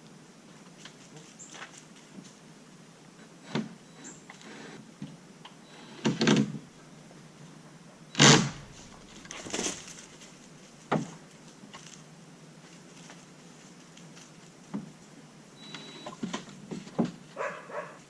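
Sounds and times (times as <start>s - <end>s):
knocks and scrapes: 8.2s - 10.2s.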